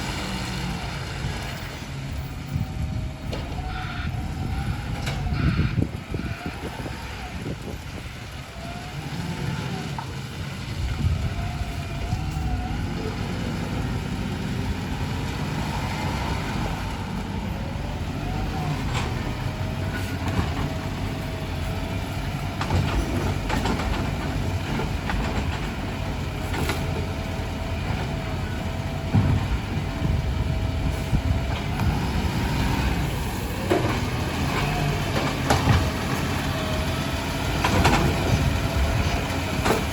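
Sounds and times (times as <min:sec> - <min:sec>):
garbage truck engine rumble: 0:00.0 - 0:39.9
knocks and clanks: 0:22.4 - 0:27.2, 0:29.0 - 0:30.2, 0:33.6 - 0:36.4, 0:37.5 - 0:39.9.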